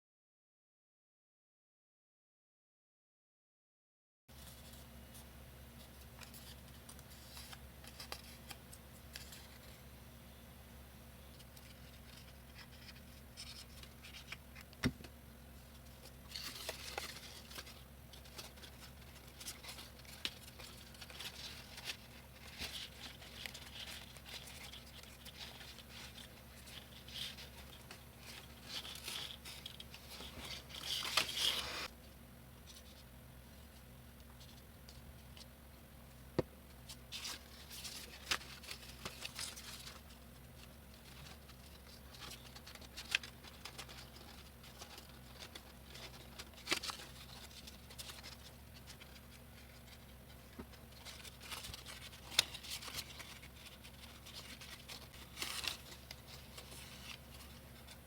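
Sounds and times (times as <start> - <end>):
paper rustling and crinkling: 4.3 - 9.8, 11.4 - 14.9, 15.8 - 31.9, 36.8 - 58.0
steady low hum: 4.3 - 58.0.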